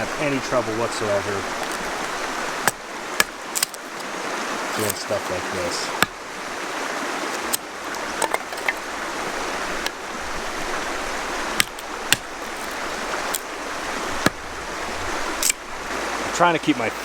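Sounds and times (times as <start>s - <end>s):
knife splitting kindling wood: 1.4s - 6.5s, 7.1s - 10.0s, 11.4s - 15.7s.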